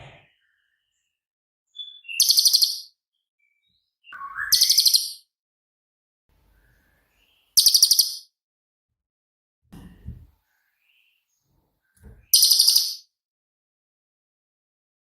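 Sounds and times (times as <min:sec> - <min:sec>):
songbird singing high notes: 0:01.8 - 0:02.9, 0:04.0 - 0:05.2, 0:07.6 - 0:08.3, 0:12.3 - 0:13.0.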